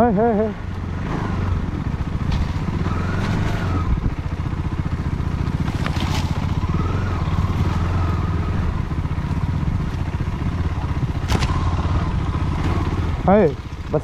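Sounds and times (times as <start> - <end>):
off-road motorcycle engine: 0.0 - 14.0.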